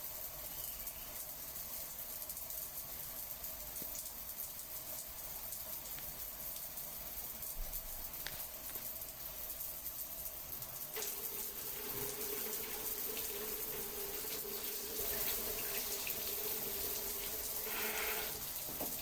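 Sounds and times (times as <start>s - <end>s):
small drip-like clicks: 0.0s - 11.2s
water running: 0.0s - 19.0s.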